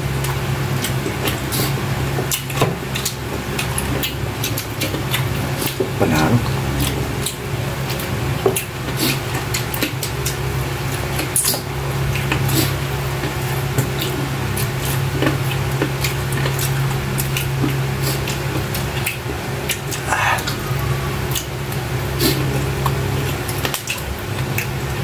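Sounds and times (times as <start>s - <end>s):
wet chewing and lip-smacking: 0.2s - 25.0s
low hum: 19.2s - 23.4s.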